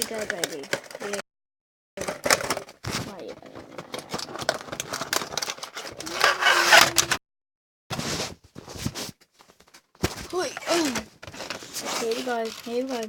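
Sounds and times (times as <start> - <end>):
toy cars clicking and rattling: 3.7 - 7.2, 10.4 - 13.0
scraping rustle: 5.7 - 7.2, 10.2 - 13.0.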